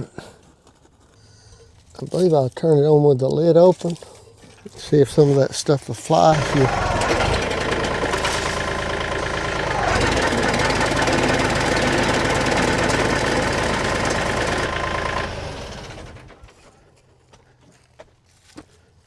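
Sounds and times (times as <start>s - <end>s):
wood chipper engine running: 6.1s - 17.0s.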